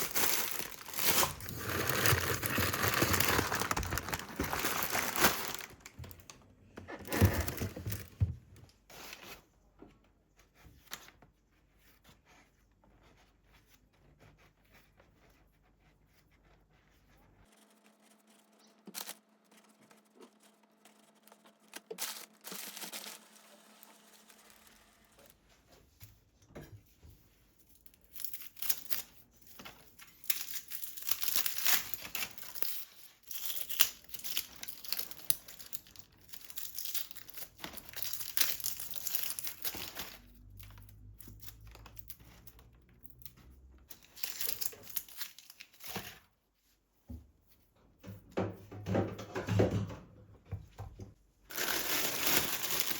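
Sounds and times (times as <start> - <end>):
packaging crinkling and tearing: 0.0 - 6.3, 18.9 - 19.7, 21.1 - 24.9, 27.9 - 42.6, 43.9 - 46.2, 51.5 - 52.9.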